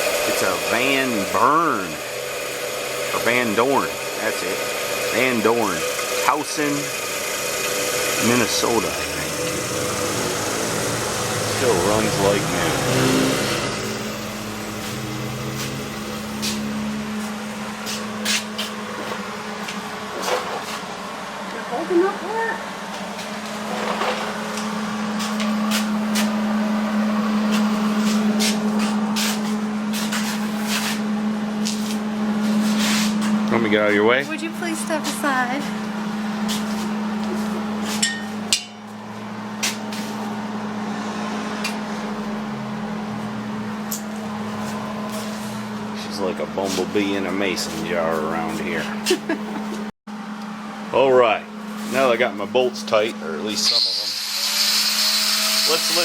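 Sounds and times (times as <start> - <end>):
grinding on metal: 0.0 - 19.4, 53.6 - 56.0
electric grinder humming: 0.0 - 30.0, 53.6 - 56.0
hand tools clinking on metal: 38.0 - 38.8.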